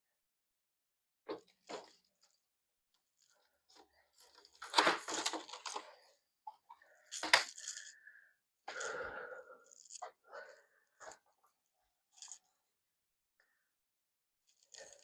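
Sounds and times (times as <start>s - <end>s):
plastic rustling and clattering: 3.7s - 6.1s.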